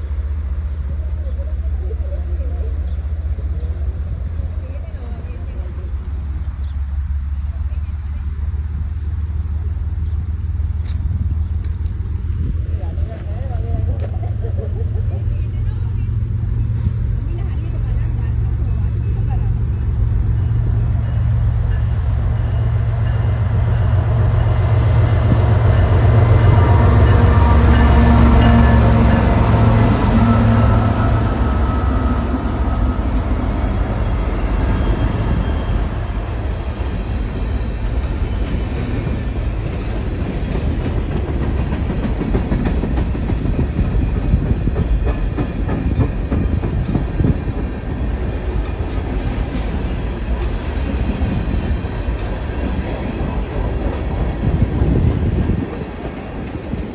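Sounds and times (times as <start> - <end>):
diesel locomotive engine drone: 0.0 - 56.9
freight train wheel rumble: 0.0 - 56.9
wheels clacking over rail joints: 35.9 - 56.9.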